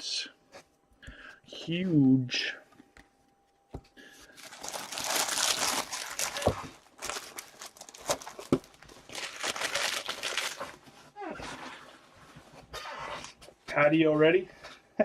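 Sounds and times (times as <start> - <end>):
plastic wrapping tearing and crinkling: 4.2 - 10.8.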